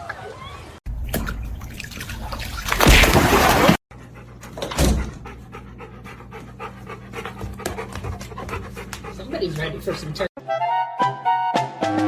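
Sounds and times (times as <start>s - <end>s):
dog panting: 3.9s - 10.3s.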